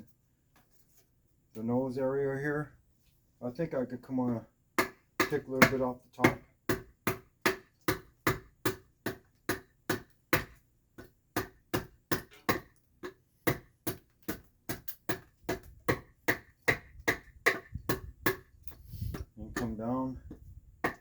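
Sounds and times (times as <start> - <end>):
adze chopping wood: 4.8 - 21.0.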